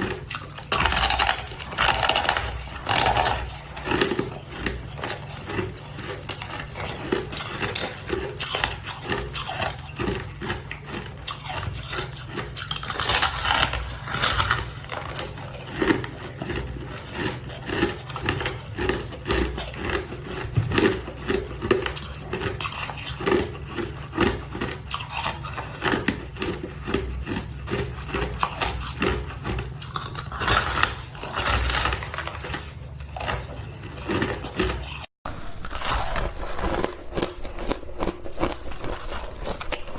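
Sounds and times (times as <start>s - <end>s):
person chewing crunchy ice: 0.0s - 39.9s.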